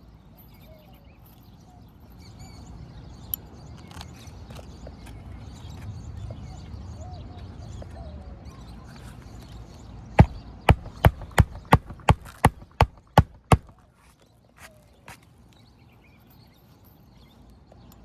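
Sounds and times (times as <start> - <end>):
hammer nailing roof shingles: 10.2 - 13.7.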